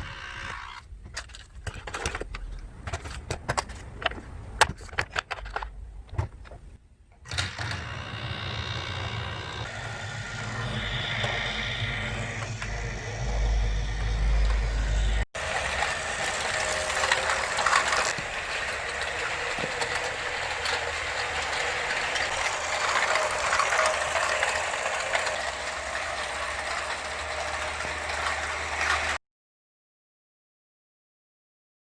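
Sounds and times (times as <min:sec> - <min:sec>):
toy train motor whining: 0:00.0 - 0:00.9, 0:07.3 - 0:29.2
plastic toy train rattling on track: 0:00.0 - 0:05.8, 0:15.4 - 0:29.2.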